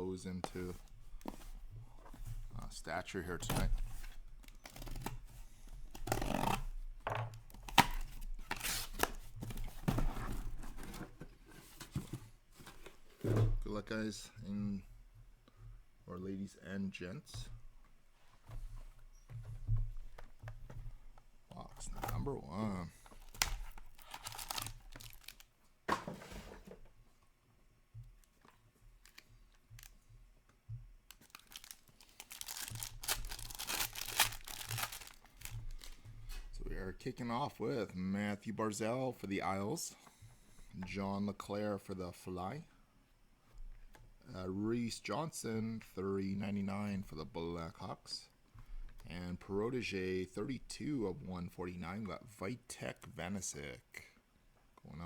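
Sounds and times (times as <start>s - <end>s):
packaging tearing and crinkling: 23.1s - 25.5s, 31.1s - 36.0s.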